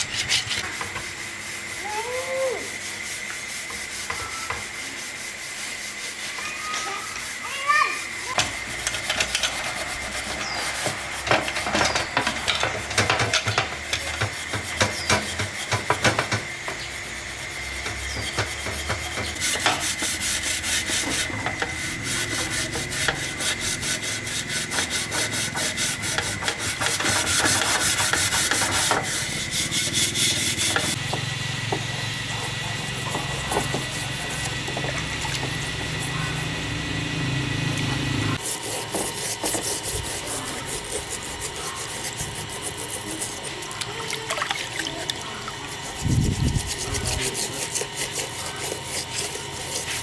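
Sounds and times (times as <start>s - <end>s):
abrasive scraping strokes: 0.0s - 12.7s, 38.3s - 50.0s.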